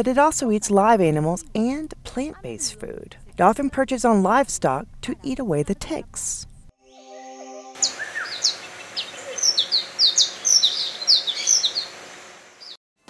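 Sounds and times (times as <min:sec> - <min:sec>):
birds chirping: 0:07.8 - 0:12.0.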